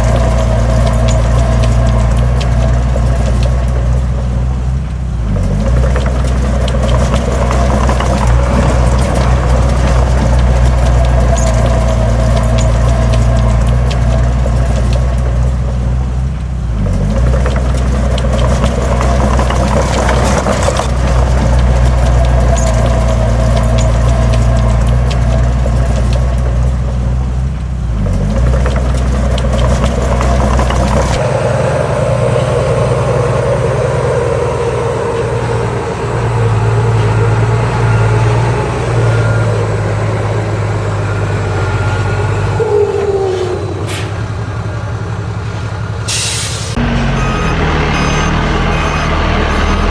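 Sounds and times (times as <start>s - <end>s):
diesel engines running: 0.0s - 49.9s.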